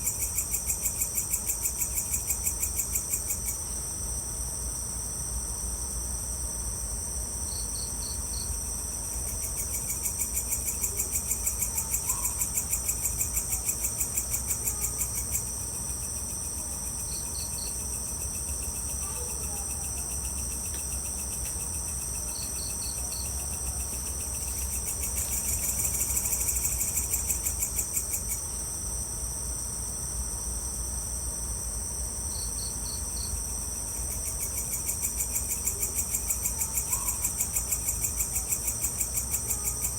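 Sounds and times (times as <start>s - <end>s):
insects droning: 0.0s - 39.9s
pulsing insect trills: 0.0s - 39.9s
short insect chirp: 7.5s - 28.5s.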